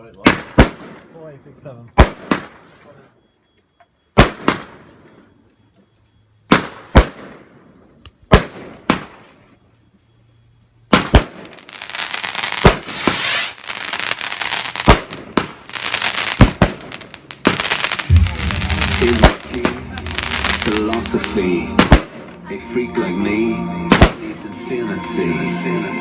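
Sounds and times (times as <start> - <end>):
fireworks crackling hiss: 11.6 - 24.2
fireworks bangs: 12.5 - 13.6, 14.8 - 22.5.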